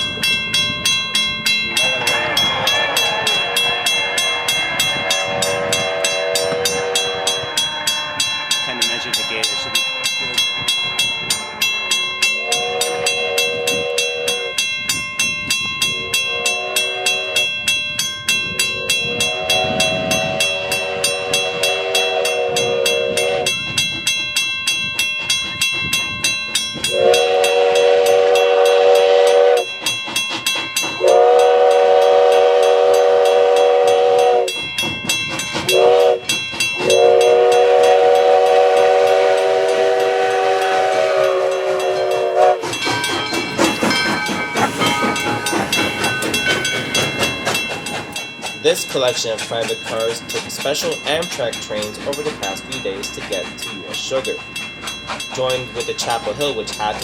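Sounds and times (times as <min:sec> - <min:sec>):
steam locomotive exhaust chuffs: 0:00.0 - 0:57.0
steam whistle blasts: 0:01.8 - 0:09.1, 0:11.6 - 0:14.6, 0:16.0 - 0:17.6, 0:18.7 - 0:23.6, 0:26.9 - 0:29.8, 0:31.0 - 0:34.6, 0:35.7 - 0:42.9.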